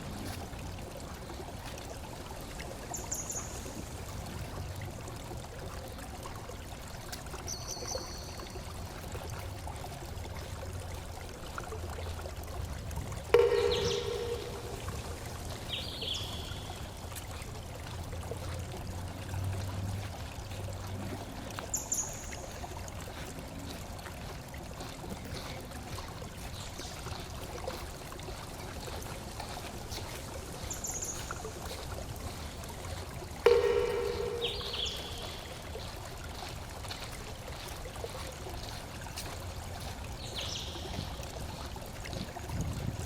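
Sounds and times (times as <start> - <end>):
forest stream running: 0.0 - 43.0
high chirps: 13.3 - 16.7, 33.4 - 35.6.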